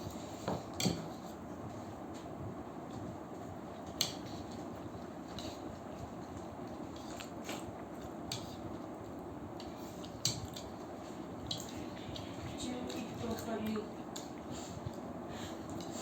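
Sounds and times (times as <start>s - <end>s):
chopsticks clicking on a plate: 9.6s - 10.7s.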